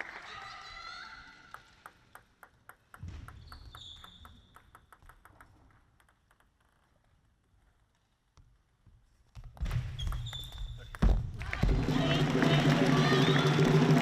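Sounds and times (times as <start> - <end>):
table tennis ball bouncing: 1.4 - 7.0.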